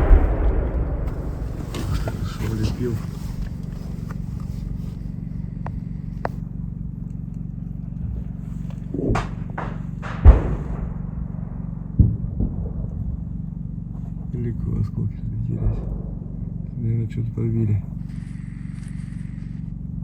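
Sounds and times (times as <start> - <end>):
gunfire cracks: 0.0 - 4.7, 9.2 - 13.9
sharp explosion bangs: 0.0 - 5.2, 9.0 - 18.2
low hum: 0.0 - 20.0.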